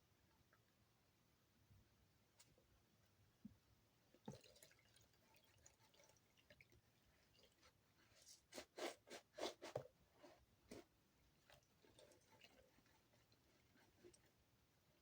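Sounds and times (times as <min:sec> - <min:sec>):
soap lathering squishing: 0:11.4 - 0:14.4.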